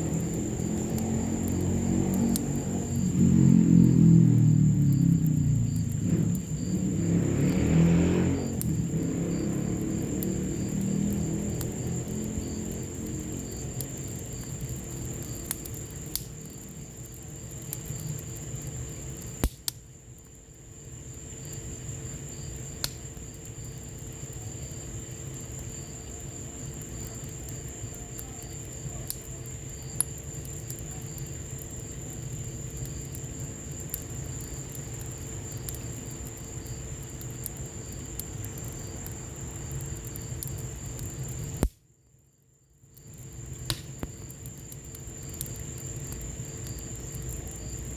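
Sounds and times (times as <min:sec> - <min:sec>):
rain hissing: 0:00.0 - 0:19.7, 0:20.8 - 0:41.7
wood fire crackling and popping: 0:00.0 - 0:42.0, 0:42.8 - 0:47.9.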